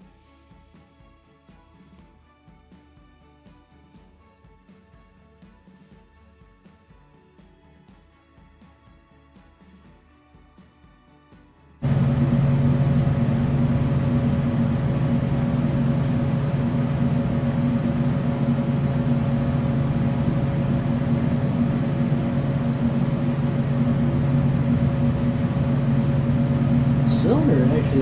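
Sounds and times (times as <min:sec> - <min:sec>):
electric machine humming: 0:11.8 - 0:28.0.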